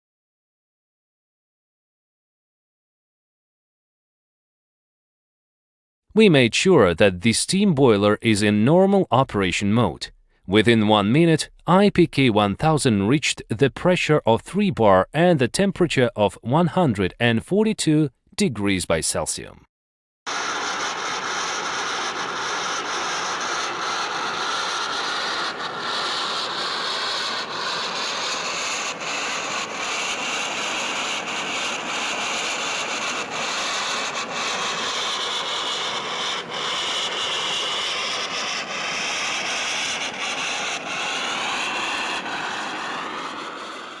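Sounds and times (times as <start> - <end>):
faint high whines: 20.3 - 44.0
steam boiler hissing: 20.3 - 44.0.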